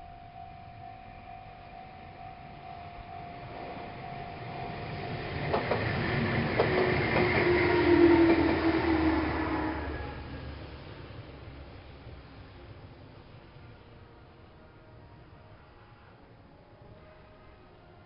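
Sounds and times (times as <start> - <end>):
train approaching: 0.0 - 18.0
wheels clacking over rail joints: 4.7 - 8.7.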